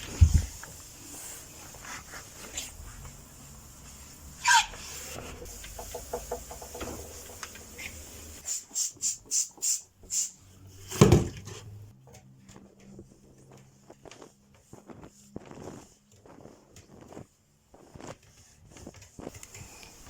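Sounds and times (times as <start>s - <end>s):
spray bottle squirts: 4.4s - 10.5s.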